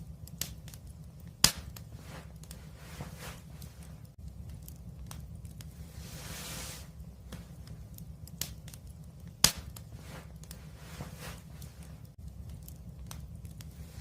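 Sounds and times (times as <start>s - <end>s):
fire crackles and pops: 0.0s - 14.0s
wood fire rumbling: 0.0s - 14.0s
hiss of escaping gas: 5.8s - 7.0s.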